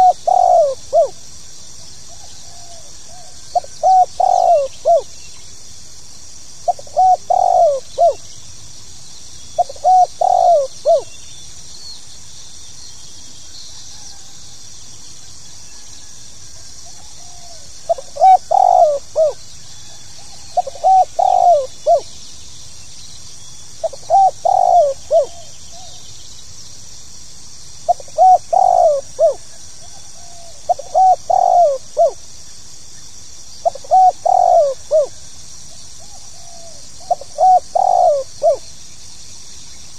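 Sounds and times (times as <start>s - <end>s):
dove cooing: 0.0s - 1.2s, 2.1s - 5.1s, 6.7s - 8.3s, 9.6s - 11.1s, 16.6s - 22.2s, 23.8s - 26.0s, 27.9s - 32.2s, 33.6s - 35.2s, 36.0s - 38.7s
faint high hiss: 0.0s - 39.9s.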